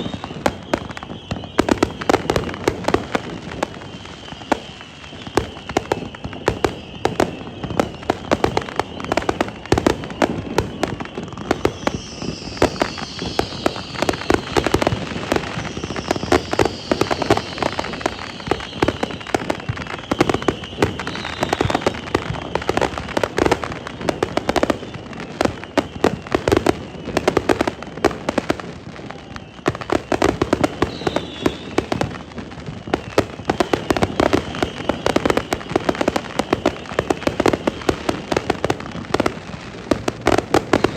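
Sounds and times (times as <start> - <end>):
fireworks crackling pops and bangs: 0.0 - 40.9
fireworks whistles falling in pitch: 0.0 - 40.9.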